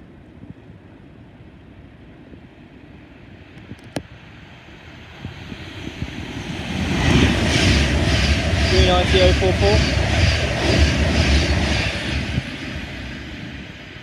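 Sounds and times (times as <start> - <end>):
electric train approaching: 4.2 - 14.0.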